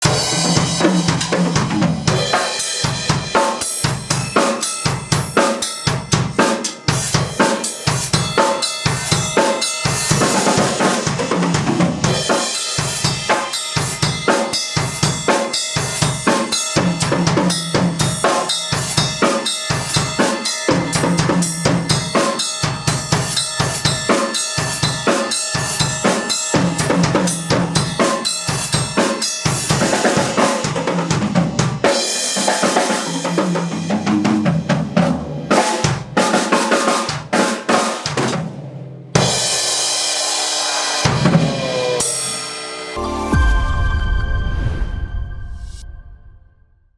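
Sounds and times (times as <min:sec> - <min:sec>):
pitched instruments: 0:00.0 - 0:31.0, 0:42.9 - 0:46.3
cymbal crashes: 0:00.0 - 0:33.8, 0:39.2 - 0:46.6
drum kit groove: 0:00.0 - 0:42.2.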